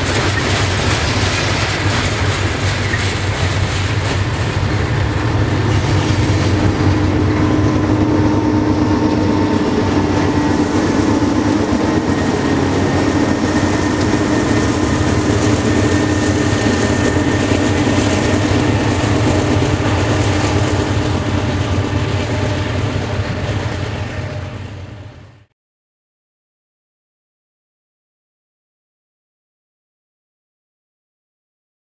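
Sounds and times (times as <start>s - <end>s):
wheels clacking over rails: 0.0s - 24.5s
diesel locomotives passing: 0.0s - 25.5s.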